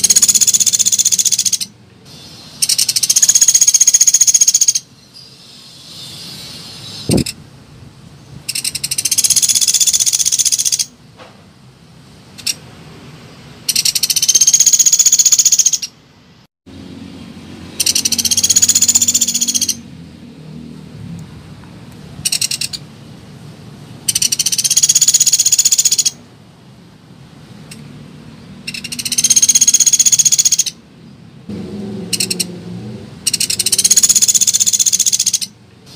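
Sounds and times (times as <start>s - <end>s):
woodpecker rattling trills: 0.0s - 1.7s, 2.6s - 4.9s, 8.5s - 10.9s, 13.7s - 15.9s, 17.8s - 19.8s, 22.2s - 22.8s, 24.1s - 26.2s, 28.6s - 30.8s, 32.1s - 32.5s, 33.3s - 35.5s.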